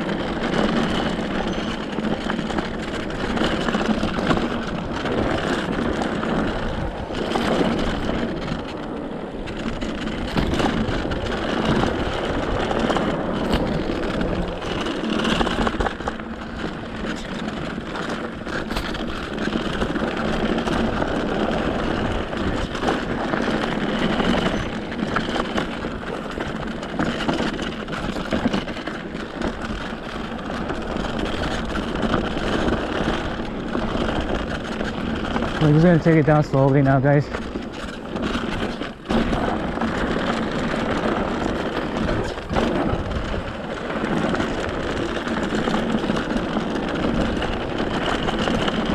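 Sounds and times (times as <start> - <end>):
bike tyres crunching on gravel: 0.0 - 48.9.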